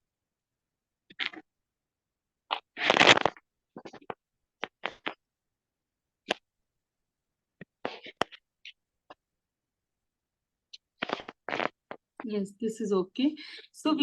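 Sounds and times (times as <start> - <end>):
charcoal pencil scratching paper: 7.8 - 8.4.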